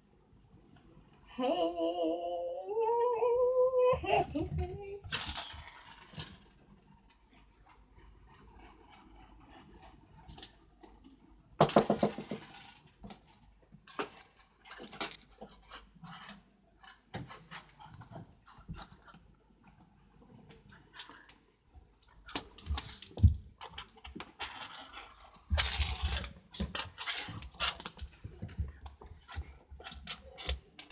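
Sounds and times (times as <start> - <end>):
kitten rustling and knocking: 11.6 - 12.7.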